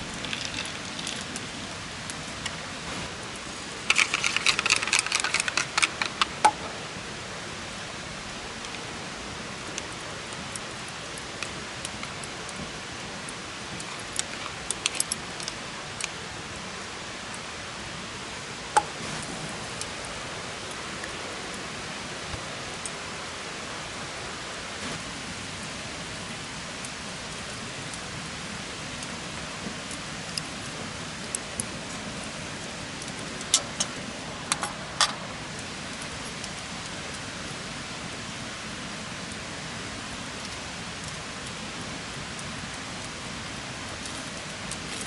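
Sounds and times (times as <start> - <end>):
campfire hissing and crackling: 0.0 - 45.0
sharp fire pops: 33.0 - 35.3.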